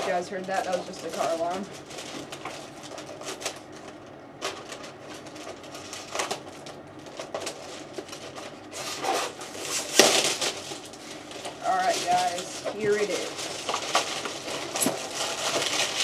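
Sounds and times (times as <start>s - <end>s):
packaging being handled: 0.0s - 16.0s.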